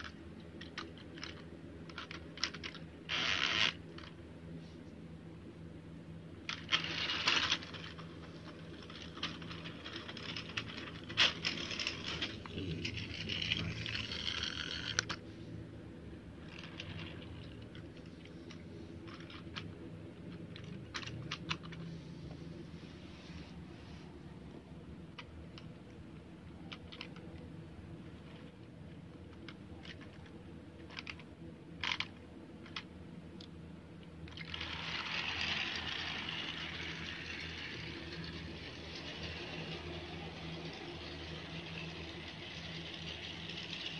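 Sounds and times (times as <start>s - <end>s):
toy train wheels rattling: 0.0s - 4.1s, 6.5s - 15.2s, 16.4s - 19.7s, 34.3s - 43.9s
toy train motor hum: 0.0s - 4.2s, 6.5s - 15.3s, 16.4s - 19.7s, 20.4s - 22.0s, 29.8s - 32.9s, 34.3s - 43.9s.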